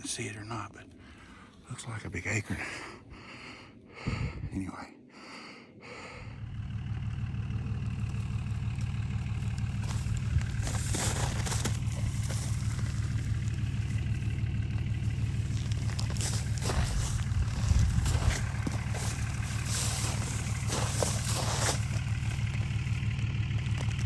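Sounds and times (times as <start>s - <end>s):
vehicle engine running: 5.3s - 24.0s.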